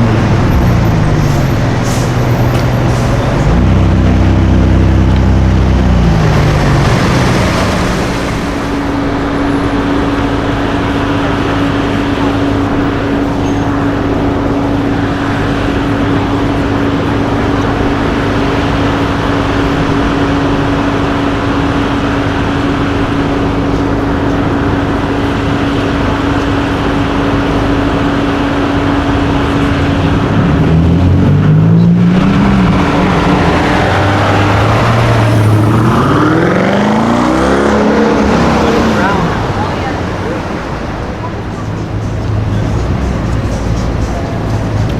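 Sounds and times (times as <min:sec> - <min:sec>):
sports car engine revving: 0:00.0 - 0:44.9.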